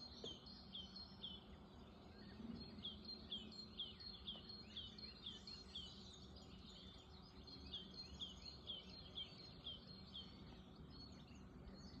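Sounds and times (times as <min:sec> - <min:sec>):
bird chirping: 0:00.0 - 0:12.0
faint background hum: 0:00.0 - 0:12.0.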